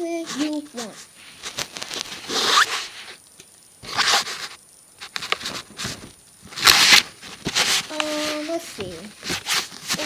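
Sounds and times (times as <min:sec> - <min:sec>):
zipper-like scraping rasps: 0:01.3 - 0:03.2, 0:03.8 - 0:04.6.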